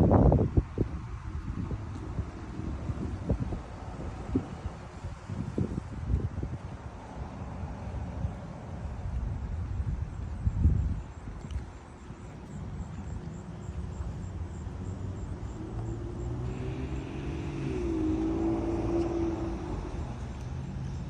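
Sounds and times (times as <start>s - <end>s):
vehicle engine passing: 13.4s - 21.0s.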